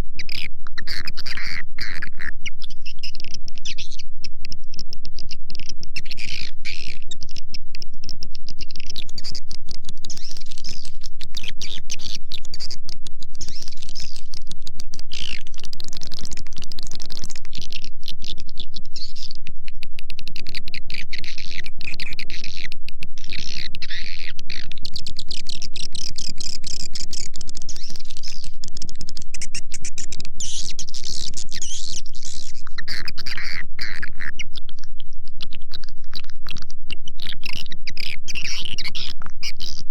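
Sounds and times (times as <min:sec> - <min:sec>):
steady low hum: 0:00.0 - 0:39.9
rapid clicks: 0:24.6 - 0:30.4.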